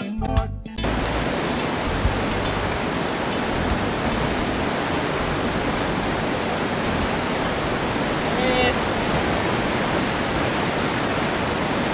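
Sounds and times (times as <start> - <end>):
whitewater rushing: 0.8 - 11.9.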